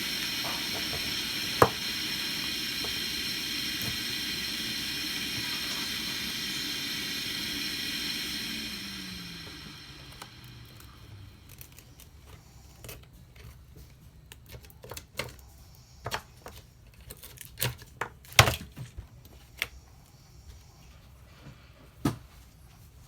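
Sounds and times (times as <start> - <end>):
hiss with falling whine: 0.0 - 11.8.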